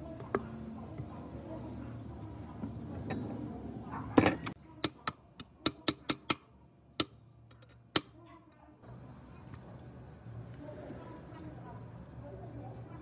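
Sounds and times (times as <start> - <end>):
ringing metallic taps: 4.2 - 8.2.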